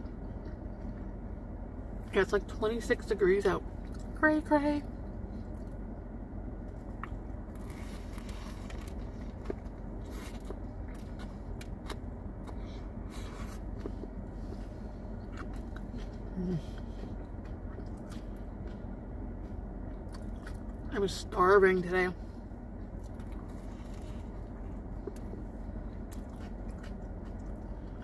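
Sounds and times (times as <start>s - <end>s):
air conditioning hum: 0.0s - 28.0s
biting and chewing sandwich: 6.7s - 20.9s, 22.8s - 28.0s.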